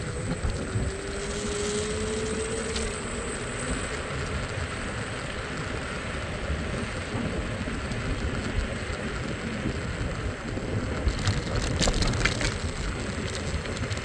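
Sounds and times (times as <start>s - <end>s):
faint rising whine: 0.0s - 8.9s
traffic engines and tyres rumbling: 0.0s - 14.0s
wind noise: 0.0s - 14.0s.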